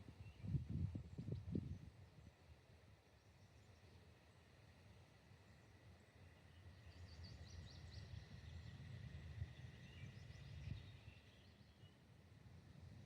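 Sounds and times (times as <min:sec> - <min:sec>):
low wind rumble on microphone: 0:00.0 - 0:02.4, 0:08.1 - 0:11.2.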